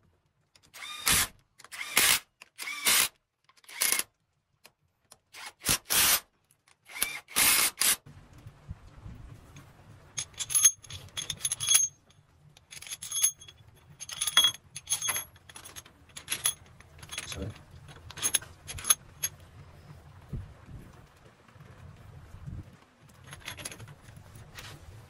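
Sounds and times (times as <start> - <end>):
faint low hum: 8.1 - 25.0
metal tools clinking and rattling: 10.2 - 19.4, 23.2 - 24.0.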